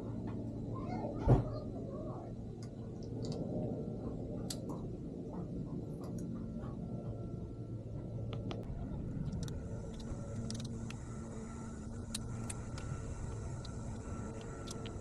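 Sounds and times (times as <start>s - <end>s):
low mechanical hum: 0.0s - 15.0s
small parts clicking and tapping: 8.3s - 15.0s.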